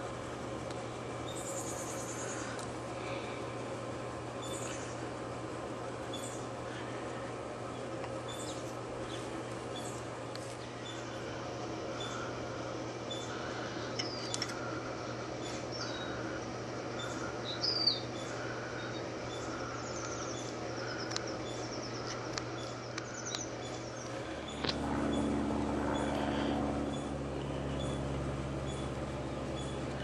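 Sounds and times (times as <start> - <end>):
steady low hum: 0.0 - 30.0
birds chirping: 0.7 - 30.0
loud low rumble: 24.3 - 29.2.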